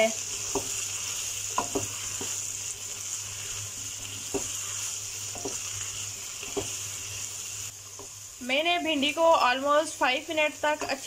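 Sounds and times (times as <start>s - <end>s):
vegetables sizzling in oil: 0.0s - 11.0s
spatula scraping a pan: 0.2s - 8.2s.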